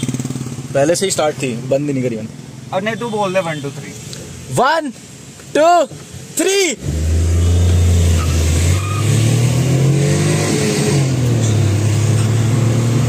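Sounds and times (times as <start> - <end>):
car engine revving hard: 6.8 - 13.0.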